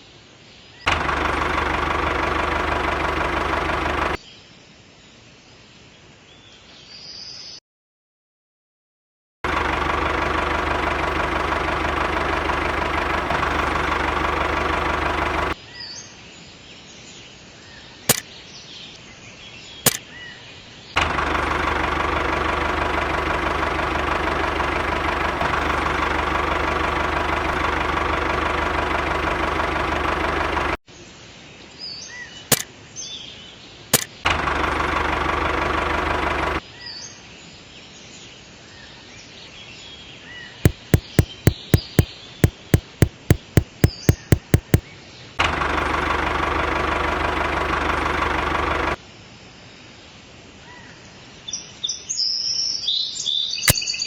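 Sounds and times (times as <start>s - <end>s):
small engine running: 0.9s - 4.2s, 9.5s - 15.6s, 21.0s - 30.8s, 34.3s - 36.6s, 40.7s - 44.8s, 45.4s - 49.0s
birds chirping: 40.7s - 44.8s
sharp clicks: 40.7s - 44.8s.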